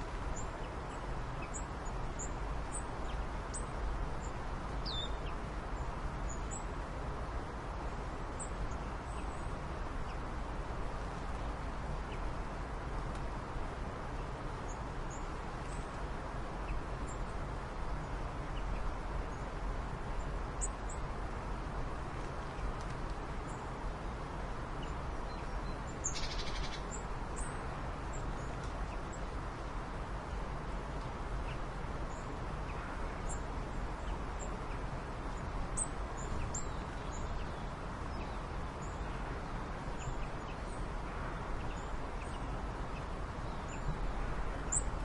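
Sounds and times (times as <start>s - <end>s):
outdoor background noise: 0.0s - 45.0s.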